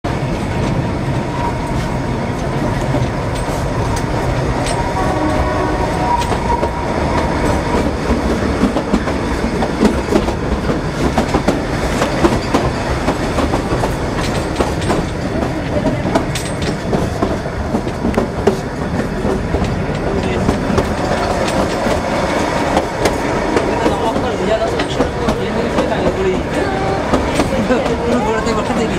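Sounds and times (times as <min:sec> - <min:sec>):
train carriage rumble: 0:00.0 - 0:28.9
wheels clattering over rail joints: 0:02.0 - 0:28.9.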